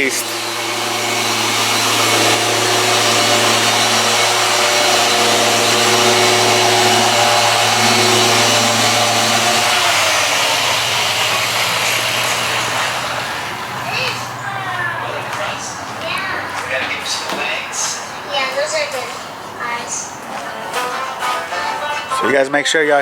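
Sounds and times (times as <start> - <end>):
orbital polisher humming: 0.0 - 19.6.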